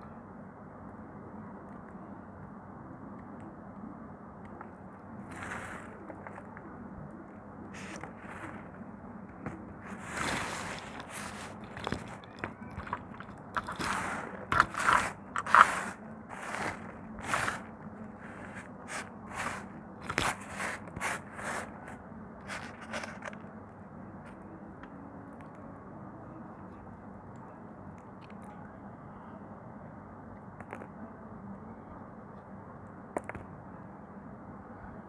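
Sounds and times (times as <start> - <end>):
dry soap crunching and scraping: 5.2 - 6.6, 7.8 - 23.5.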